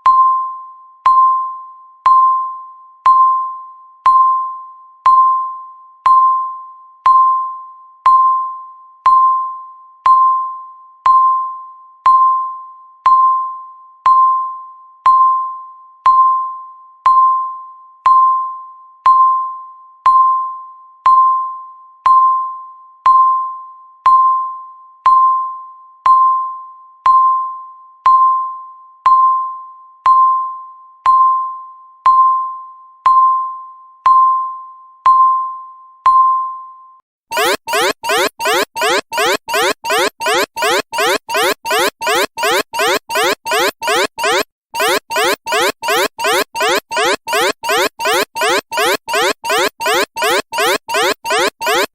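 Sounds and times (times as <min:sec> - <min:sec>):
electronic timer ding: 0:37.3 - 0:51.9.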